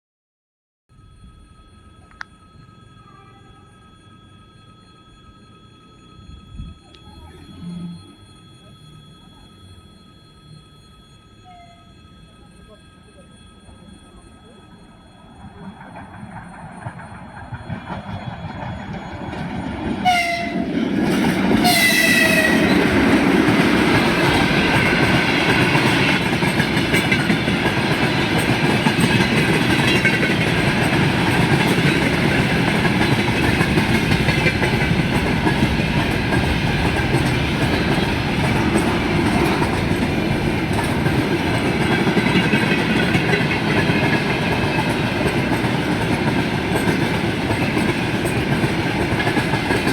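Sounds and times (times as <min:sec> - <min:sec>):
freight train rumbling by: 0:10.8 - 0:49.9
locomotive horn blasts: 0:11.4 - 0:12.0, 0:20.0 - 0:20.8, 0:21.5 - 0:25.0
train wheel clatter: 0:15.4 - 0:49.9.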